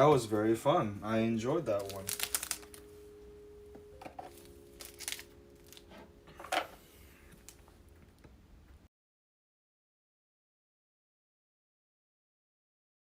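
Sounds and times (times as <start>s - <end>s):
low steady hum: 0.0s - 8.9s
cards and packaging rustling: 1.7s - 3.0s, 4.0s - 7.8s.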